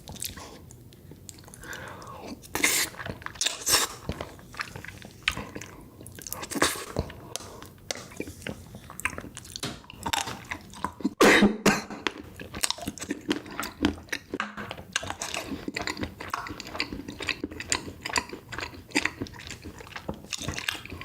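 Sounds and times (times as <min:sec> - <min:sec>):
person chewing chocolate desserts: 0:00.0 - 0:11.2, 0:11.8 - 0:21.0.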